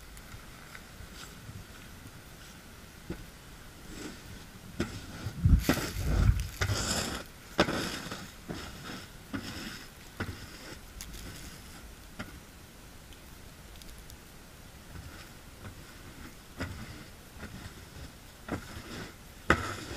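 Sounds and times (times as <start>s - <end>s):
snow shovel scraping snow: 3.8s - 11.9s, 14.9s - 19.9s.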